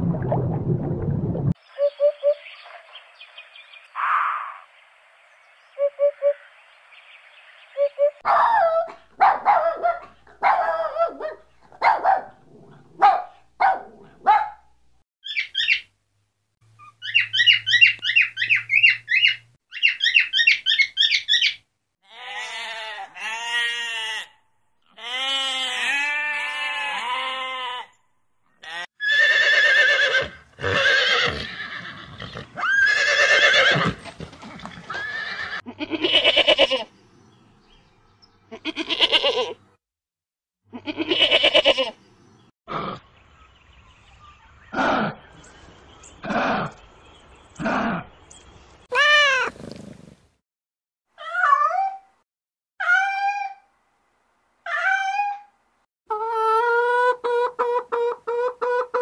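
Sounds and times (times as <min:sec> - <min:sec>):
dog yelping and whimpering: 0:08.3 - 0:10.0, 0:51.2 - 0:52.1, 0:52.8 - 0:53.6, 0:54.7 - 0:55.5
sheep and goats bleating: 0:22.1 - 0:28.0, 0:28.6 - 0:28.9, 0:35.4 - 0:36.9, 0:38.5 - 0:39.6, 0:40.7 - 0:42.0.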